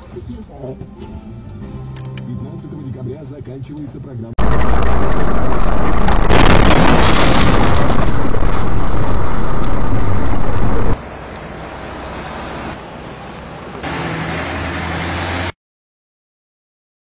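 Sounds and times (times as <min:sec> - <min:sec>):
low vehicle hum: 0:04.4 - 0:13.8
distorted vehicle rumble: 0:04.4 - 0:14.6.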